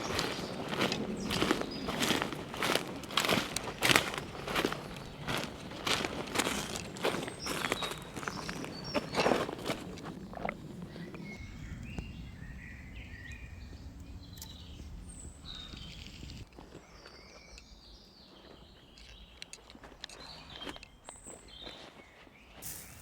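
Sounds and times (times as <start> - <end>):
low rumble: 0.0 - 16.4
songbirds chirping: 0.0 - 23.0.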